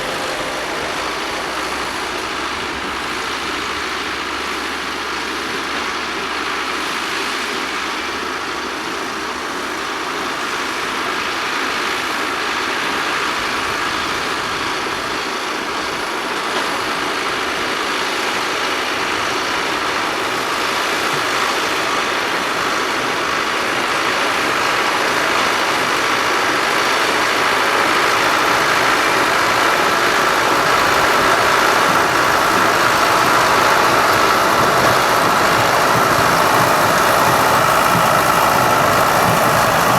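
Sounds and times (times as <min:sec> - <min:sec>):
baler machinery working: 0:00.0 - 0:04.8, 0:19.3 - 0:39.9
tractor engine running: 0:00.0 - 0:39.9.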